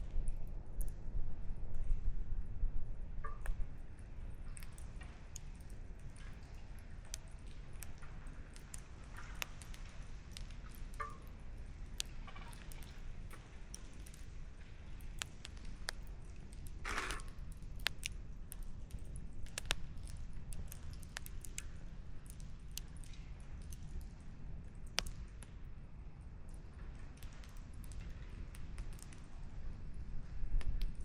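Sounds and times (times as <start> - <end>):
campfire crackling and popping: 15.0 - 24.0.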